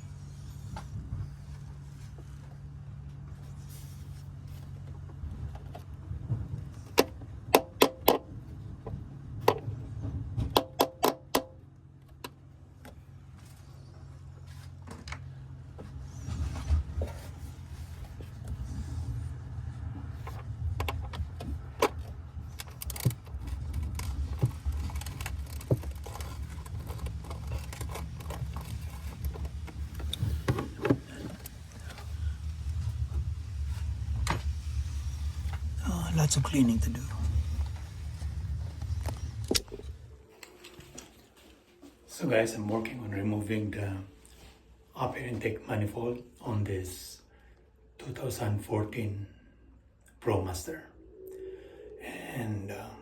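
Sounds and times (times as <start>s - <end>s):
steady low hum: 0.0s - 53.0s
scraping and rustling: 21.2s - 35.8s.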